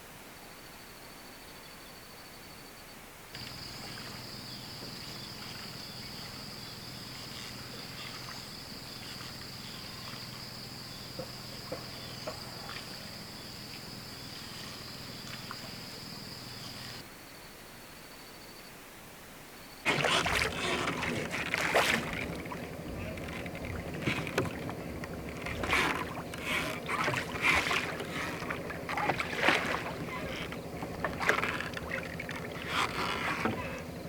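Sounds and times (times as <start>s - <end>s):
high-pitched insect chorus: 3.4s - 17.0s, 20.3s - 34.0s
low steady hum: 19.9s - 34.0s.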